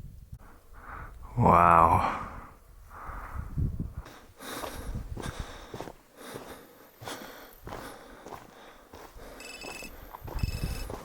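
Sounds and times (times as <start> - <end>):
person breathing hard: 2.0 - 10.1.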